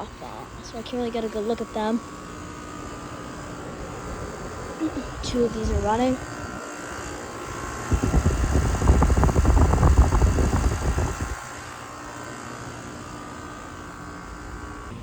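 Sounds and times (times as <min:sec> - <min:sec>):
heat pump compressor and fan hum: 0:00.0 - 0:15.0
loud irregular low rumble: 0:03.7 - 0:06.6, 0:07.9 - 0:11.5.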